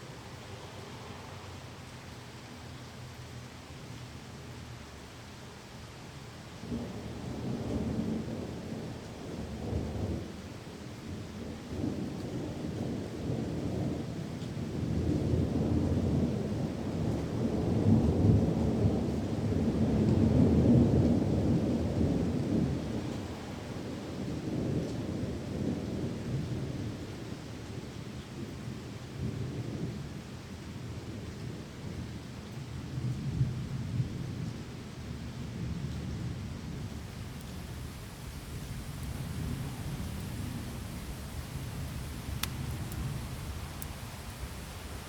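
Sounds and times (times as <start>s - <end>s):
steady rain: 0.0s - 45.0s
rolling thunder: 36.7s - 45.0s.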